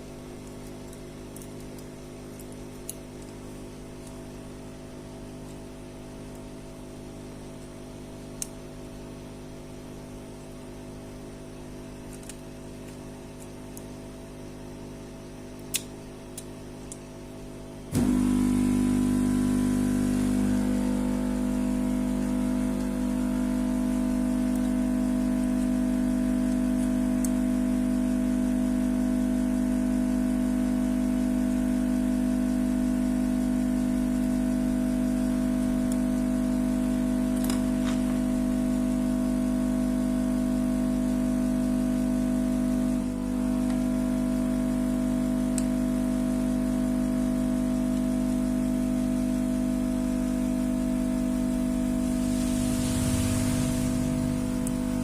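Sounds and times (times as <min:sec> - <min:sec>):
motor running: 0:17.9 - 0:24.7, 0:51.6 - 0:55.0
low hum: 0:17.9 - 0:26.8, 0:51.2 - 0:55.0.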